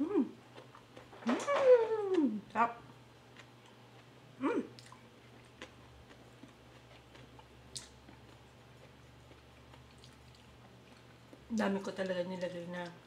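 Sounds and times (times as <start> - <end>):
person chewing food: 0.4 - 1.2, 2.9 - 11.5
mouth smacks and clicks: 7.1 - 8.0.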